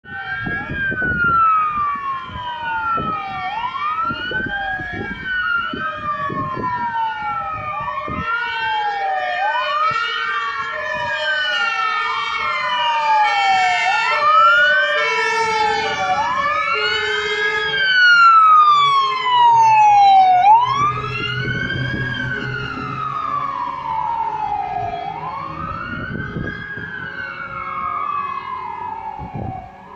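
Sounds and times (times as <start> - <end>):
wailing sirens: 0.0 - 29.9
diesel engine rumbling past: 14.3 - 29.9.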